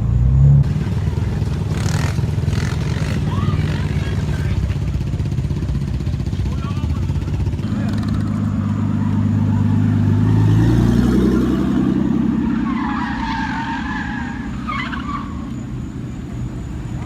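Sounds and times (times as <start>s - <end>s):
car engine revving: 0.0s - 17.0s
wavering high squeal: 12.2s - 17.0s.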